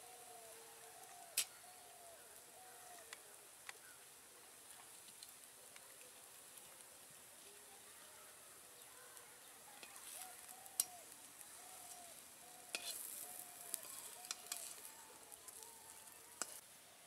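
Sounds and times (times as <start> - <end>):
patties sizzling in oil: 0.1 - 16.7
metal spatula scraping a pan: 9.8 - 10.9, 11.8 - 14.9, 16.4 - 16.6.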